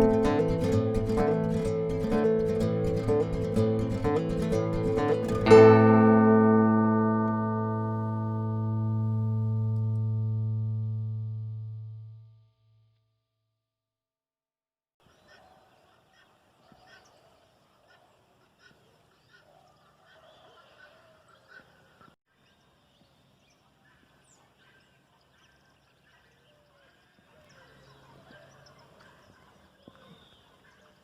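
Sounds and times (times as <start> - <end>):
faint chorus of birds chirping: 15.0 - 31.0.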